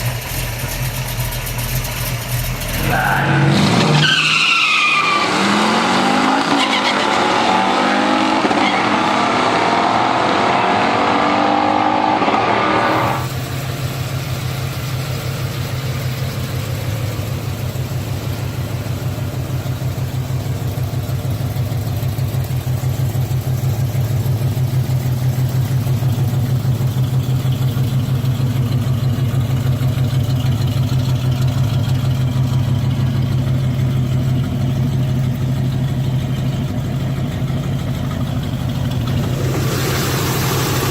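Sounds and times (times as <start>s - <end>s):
engine running steadily: 0.0s - 3.6s, 11.8s - 40.9s
engine revving: 5.0s - 13.7s, 38.8s - 40.9s.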